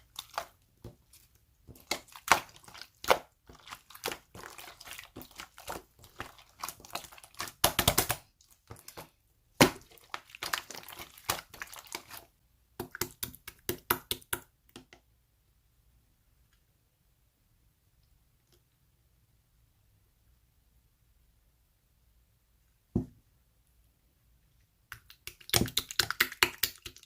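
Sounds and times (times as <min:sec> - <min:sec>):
slime crackling and popping: 0:00.0 - 0:09.0, 0:09.6 - 0:12.3.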